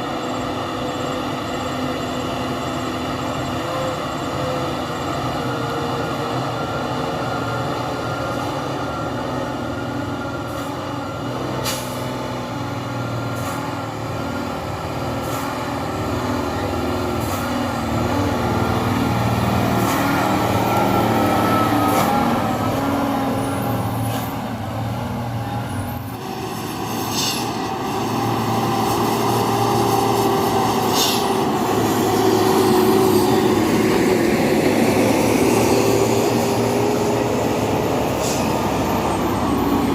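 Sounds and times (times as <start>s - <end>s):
dump truck engines labouring: 0.0s - 39.9s
short sharp hisses: 11.6s - 12.1s, 26.9s - 27.6s, 30.8s - 31.4s.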